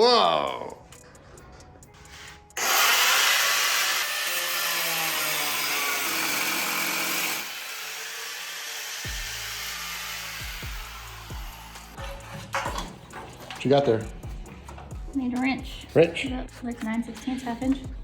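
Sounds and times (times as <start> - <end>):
angle grinder cutting metal: 2.6 - 12.0.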